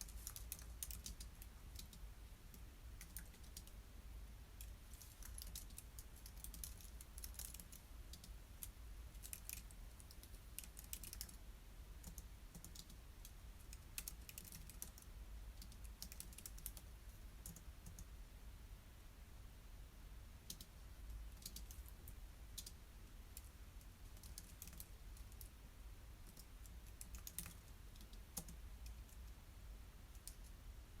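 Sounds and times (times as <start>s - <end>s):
keyboard typing: 0.0s - 3.8s, 4.6s - 11.4s, 12.0s - 18.1s, 20.4s - 23.5s, 24.1s - 25.5s, 26.2s - 29.3s
low steady hum: 0.0s - 31.0s.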